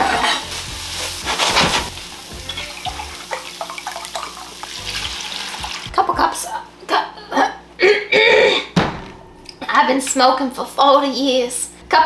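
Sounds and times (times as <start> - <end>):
onion sizzling in a pot: 0.0 - 6.0.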